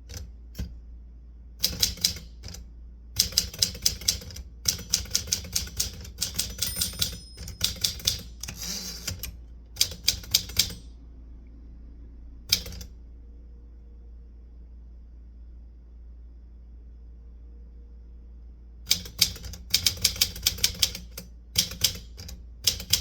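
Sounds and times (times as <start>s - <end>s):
typewriter keystrokes: 0.1s - 0.7s, 1.6s - 2.6s, 3.2s - 10.9s, 12.5s - 12.9s, 18.9s - 23.0s.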